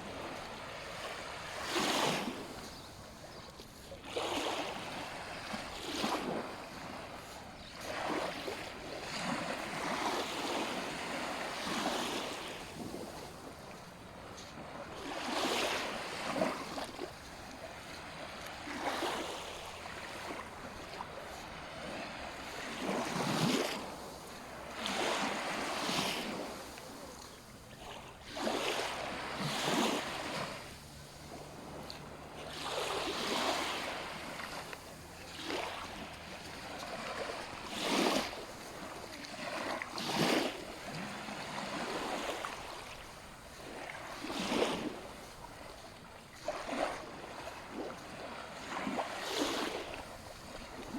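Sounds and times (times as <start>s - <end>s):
small waves washing on sand: 0.0s - 50.9s.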